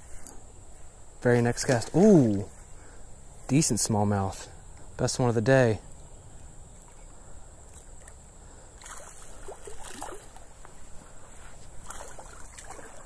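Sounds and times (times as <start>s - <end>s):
fish thrashing and splashing: 8.8s - 10.5s.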